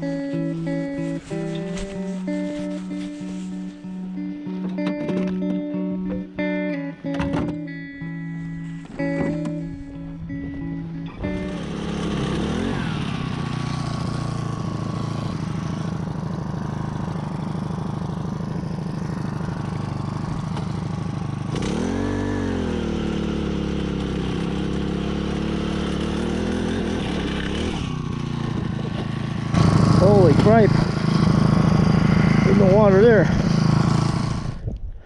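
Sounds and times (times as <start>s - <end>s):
small gasoline engine running: 11.2s - 34.6s.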